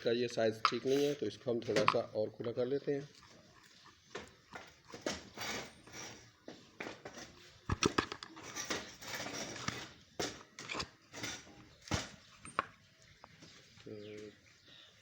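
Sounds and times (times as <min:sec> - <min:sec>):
hand tool scraping metal: 0:00.6 - 0:01.9, 0:03.0 - 0:06.3, 0:08.3 - 0:11.8.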